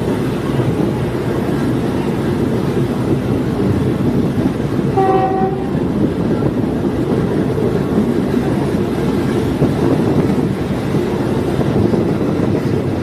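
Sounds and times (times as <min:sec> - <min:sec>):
railcar rumbling and rattling on track: 0:00.0 - 0:13.0
train horn blast: 0:04.9 - 0:05.9.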